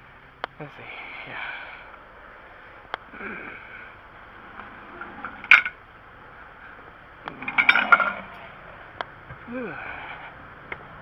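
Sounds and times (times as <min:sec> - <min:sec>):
metal tools clinking: 0:04.9 - 0:05.8, 0:07.3 - 0:08.5.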